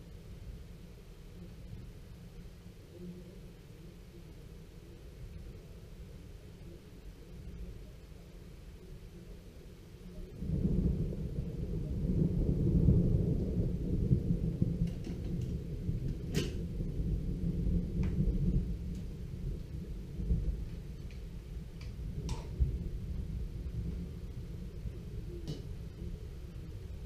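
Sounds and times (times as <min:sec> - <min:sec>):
rolling thunder: 0:10.4 - 0:27.0.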